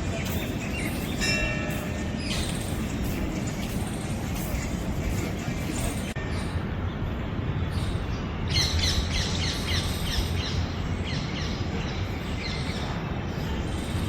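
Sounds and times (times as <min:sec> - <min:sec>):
bird chirping: 0:00.0 - 0:06.6.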